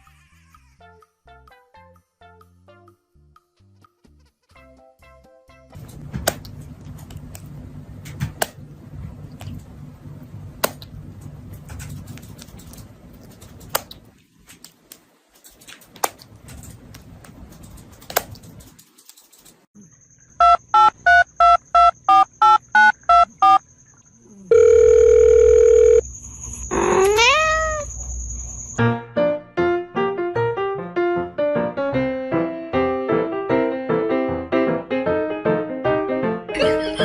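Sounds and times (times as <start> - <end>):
phone keypad beeps: 20.4 - 23.6
piano music: 28.8 - 37.0.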